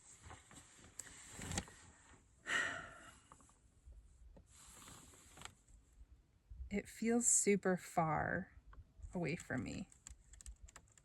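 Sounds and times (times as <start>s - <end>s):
faint handling sounds: 0.0s - 2.3s, 3.2s - 5.8s
woman breathing out: 2.4s - 3.2s.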